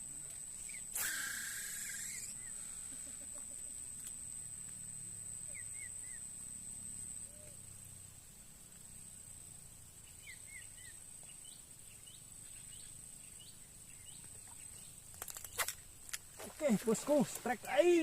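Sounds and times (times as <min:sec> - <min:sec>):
high-pitched insect drone: 0:00.0 - 0:18.0
short bird chirps: 0:00.6 - 0:02.6.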